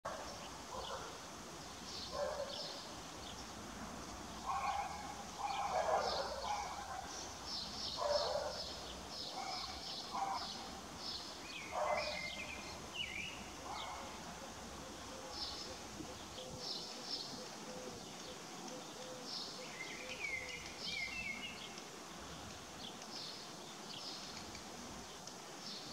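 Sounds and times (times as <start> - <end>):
lower bird calls: 14.8 - 21.8.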